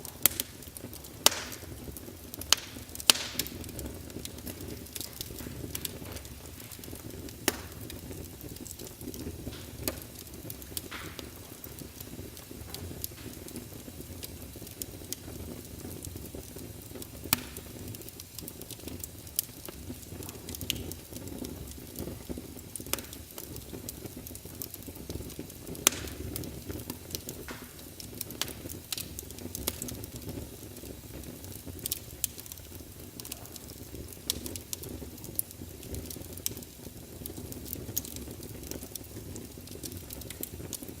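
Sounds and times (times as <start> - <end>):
logs crackling and popping: 0.0 - 41.0
low rumble of fire: 0.0 - 41.0.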